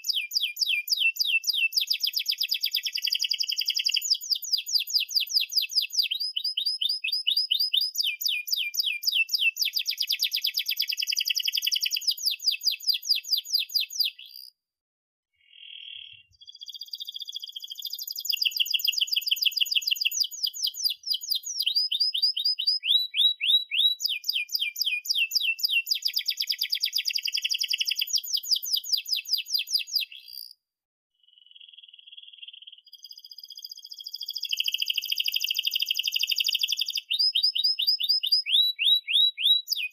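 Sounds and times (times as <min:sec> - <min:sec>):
canary singing trills: 0:00.0 - 0:14.5, 0:15.4 - 0:30.6, 0:31.3 - 0:39.9.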